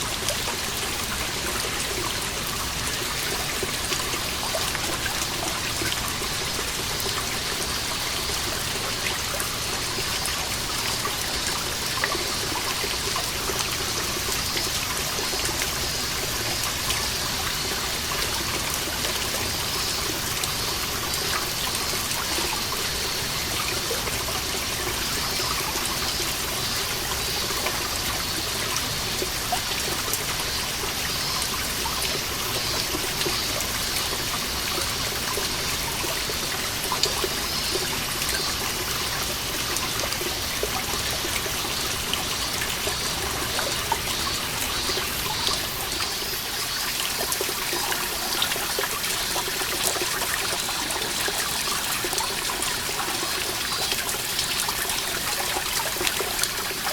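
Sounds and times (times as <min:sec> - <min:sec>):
steady water trickle: 0:00.0 - 0:56.9
water dripping: 0:00.0 - 0:56.9
cicadas singing: 0:30.0 - 0:56.9.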